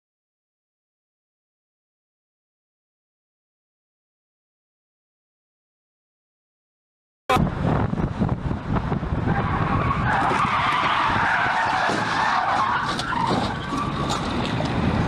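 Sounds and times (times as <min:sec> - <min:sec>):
moving vehicle rumble: 0:07.3 - 0:15.0
car tyres skidding: 0:09.1 - 0:15.0.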